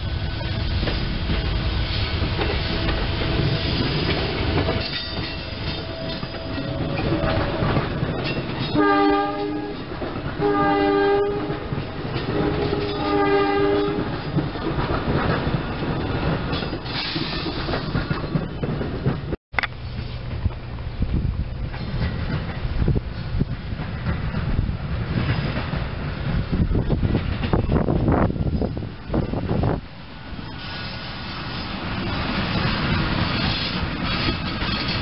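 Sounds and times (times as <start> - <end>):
train wheels clacking over rail joints: 0.5 - 29.7, 30.5 - 35.0
train horn blasts: 8.5 - 14.2.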